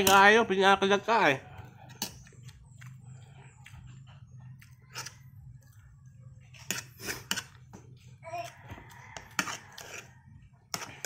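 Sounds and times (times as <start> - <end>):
metal spoon scraping plate: 4.7 - 5.4, 6.5 - 7.7, 8.4 - 11.0.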